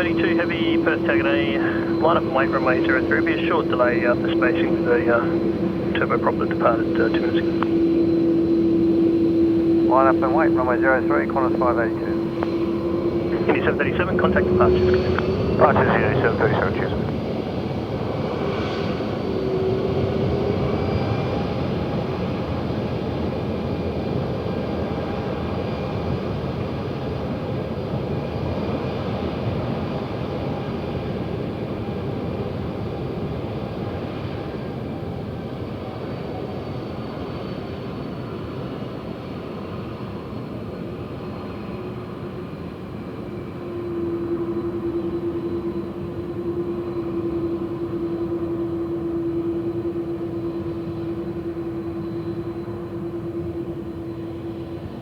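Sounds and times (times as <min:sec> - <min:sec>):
steady low hum: 0:00.0 - 0:17.4
jet engines rushing and whining: 0:00.0 - 0:55.0.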